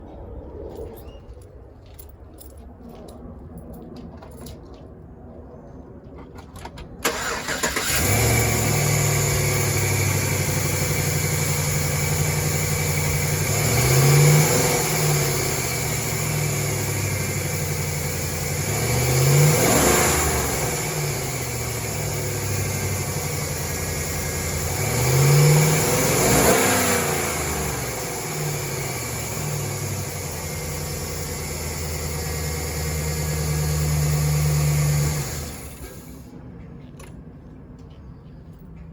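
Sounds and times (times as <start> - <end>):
engine revving: 7.0 - 36.2
pickup engine starting and idling: 7.0 - 36.3.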